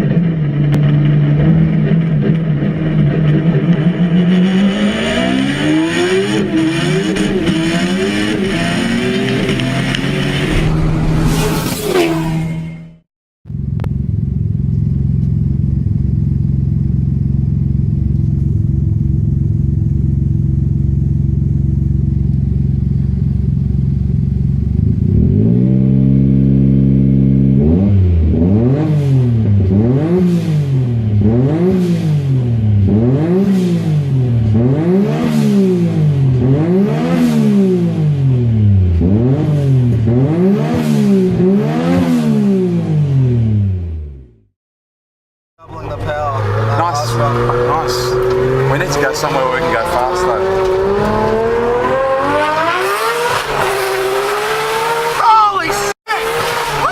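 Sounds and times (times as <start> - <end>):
car engine idling and revving: 0.0 - 44.5, 45.6 - 56.9.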